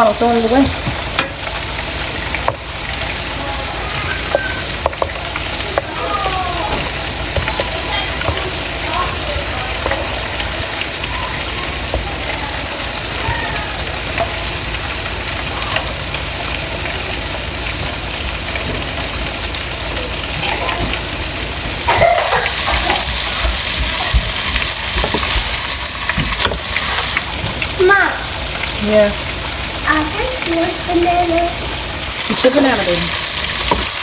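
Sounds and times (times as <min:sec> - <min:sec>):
fish sizzling in hot grease: 0:00.0 - 0:34.0.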